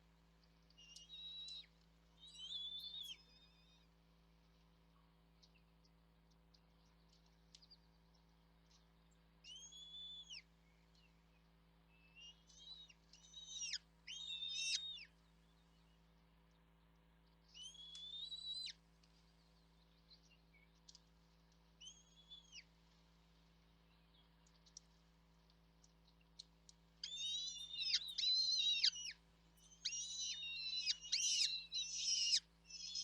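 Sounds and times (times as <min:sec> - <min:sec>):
faint steady hum: 0:00.0 - 0:33.0
small birds calling: 0:12.1 - 0:16.7, 0:17.6 - 0:18.7, 0:25.8 - 0:33.0.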